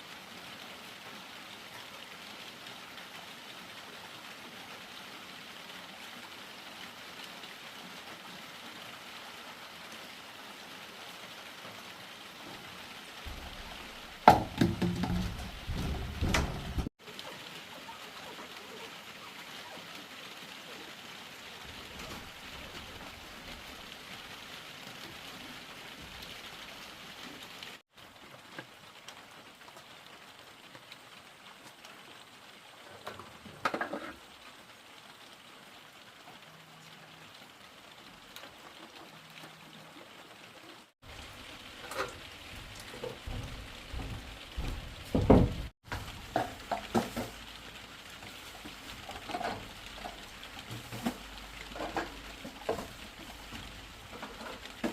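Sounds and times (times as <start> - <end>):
rain hiss: 0.0 - 54.9
knocks and clatters of objects: 12.5 - 16.9, 33.0 - 34.2, 41.7 - 47.5, 48.6 - 54.9.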